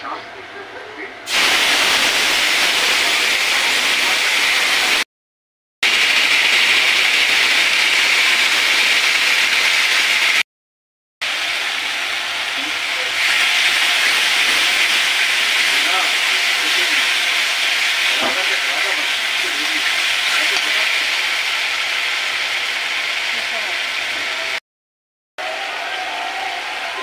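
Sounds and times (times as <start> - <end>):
paste sizzling in hot oil: 1.3 - 5.0, 5.8 - 10.4, 11.2 - 24.4.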